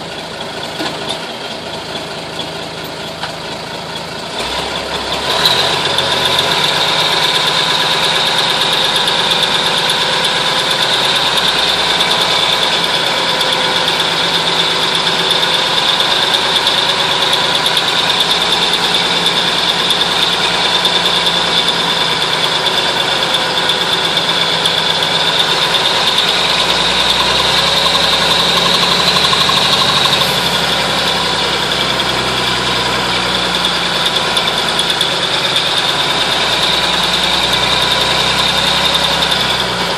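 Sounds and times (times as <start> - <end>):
diesel truck engine running: 0.0 - 39.9
steady high whine: 26.0 - 37.3.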